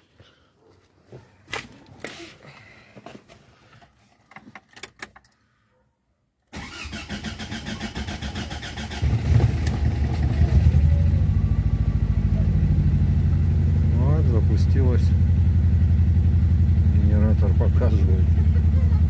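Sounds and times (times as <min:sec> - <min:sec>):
car engine cranking and starting: 0:06.5 - 0:15.1
car engine idling: 0:07.8 - 0:19.0.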